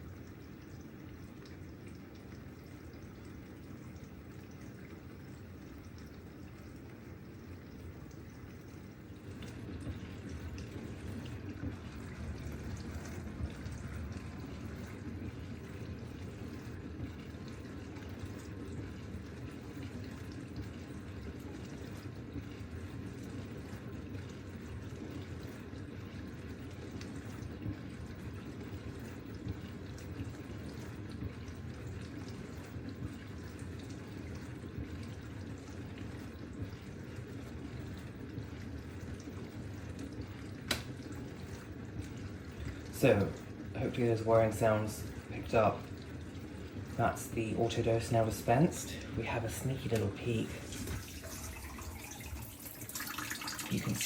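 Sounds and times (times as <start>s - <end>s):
dishwasher whirring: 0.0s - 54.0s
dishwasher spraying water: 47.0s - 54.0s.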